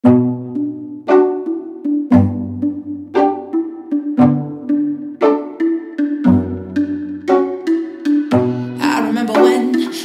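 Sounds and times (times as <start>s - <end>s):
plucked string music: 0.0s - 10.0s.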